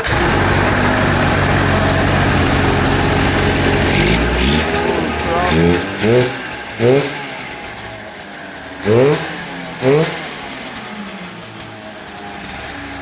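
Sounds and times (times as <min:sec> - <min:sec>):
snowmobile engine revving: 0:00.0 - 0:11.6.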